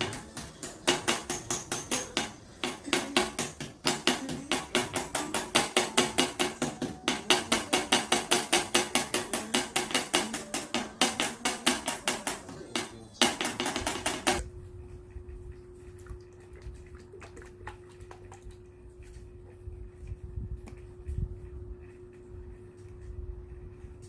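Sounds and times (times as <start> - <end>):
hammer tapping: 0.0 - 14.4.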